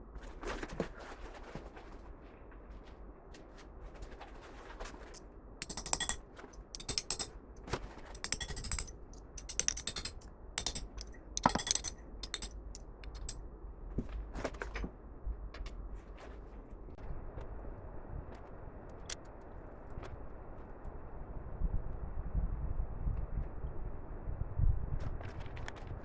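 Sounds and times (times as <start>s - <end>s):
small metal parts clinking: 5.6s - 13.4s.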